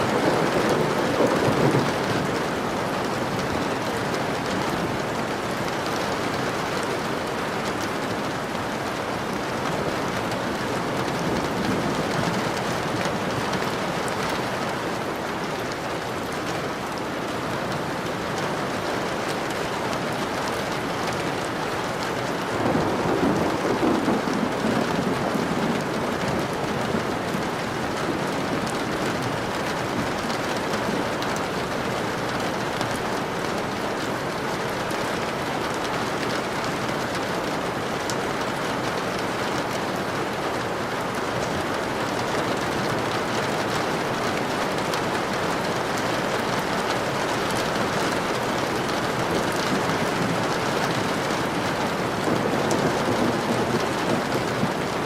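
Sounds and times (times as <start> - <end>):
low thunder roll: 0.0 - 2.7
steady rain falling: 0.0 - 55.0.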